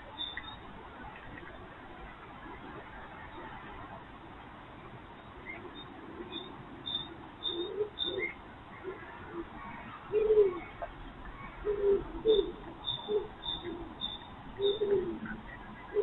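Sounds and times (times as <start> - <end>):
cuckoo calling: 0.0 - 0.7, 5.4 - 16.0
faint high bird chirps: 0.1 - 0.7, 5.2 - 8.4, 12.3 - 16.0.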